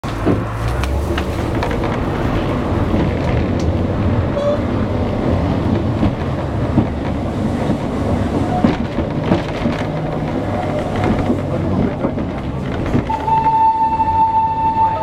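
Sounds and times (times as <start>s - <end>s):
train rumble from inside carriage: 0.0s - 15.0s
wheels clacking on rails: 0.0s - 15.0s.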